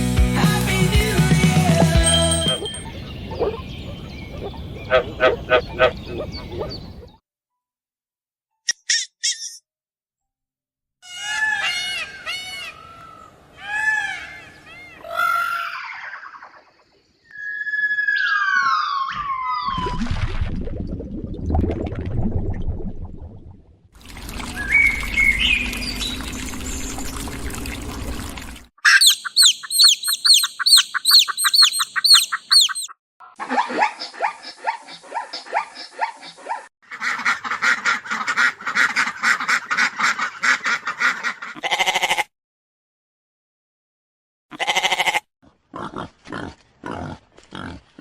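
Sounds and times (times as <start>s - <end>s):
animal calls: 2.4s - 7.2s, 11.0s - 19.9s, 28.8s - 36.6s
ducks quacking: 4.4s - 7.0s, 28.8s - 42.2s.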